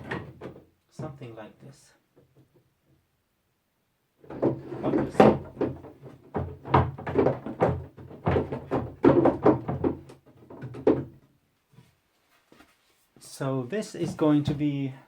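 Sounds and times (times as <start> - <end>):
wooden pieces knocking: 4.2 - 11.3.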